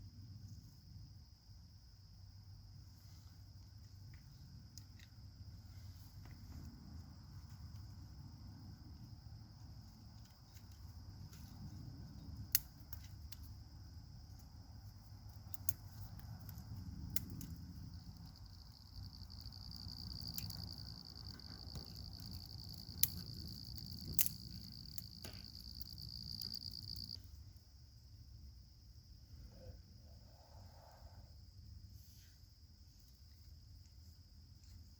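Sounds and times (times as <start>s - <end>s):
sharp snaps: 12.5s - 13.5s, 22.9s - 27.1s
insect trilling: 14.8s - 27.4s.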